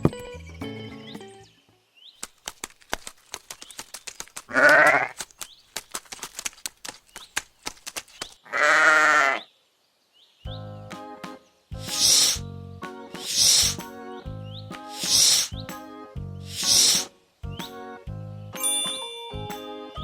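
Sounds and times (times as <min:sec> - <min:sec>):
music: 0:00.0 - 0:01.7, 0:10.5 - 0:20.0
sheep bleating: 0:08.5 - 0:09.4.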